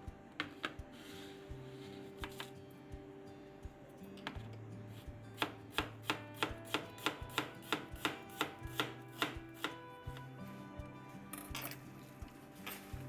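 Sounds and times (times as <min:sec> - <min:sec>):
knife chopping on cutting board: 0:05.4 - 0:09.8.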